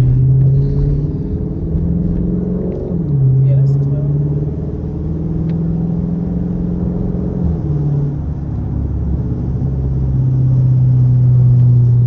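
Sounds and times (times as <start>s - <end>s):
car exhaust at low revs: 0.0s - 5.6s.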